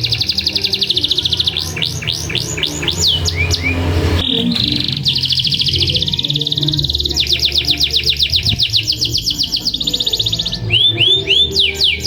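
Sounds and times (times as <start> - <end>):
canary singing trills: 0.0 - 12.0.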